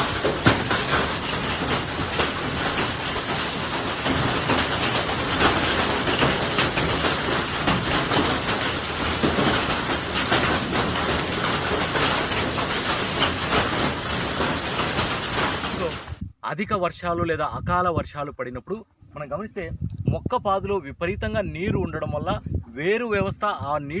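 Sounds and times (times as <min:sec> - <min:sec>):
heavy rain on a tree: 0:00.0 - 0:16.2.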